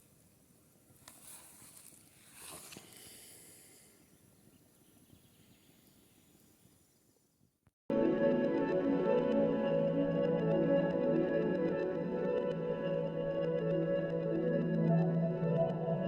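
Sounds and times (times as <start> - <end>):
soft rustling hisses: 0.0 - 3.9
music: 7.9 - 16.0.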